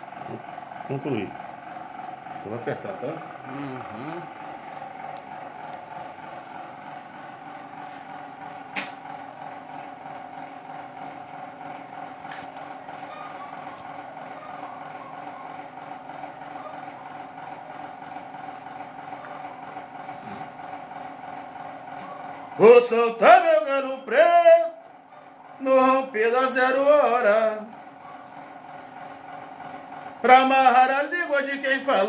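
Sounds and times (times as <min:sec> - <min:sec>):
mechanical hum: 0:00.0 - 0:32.0
sharp click: 0:08.7 - 0:09.0.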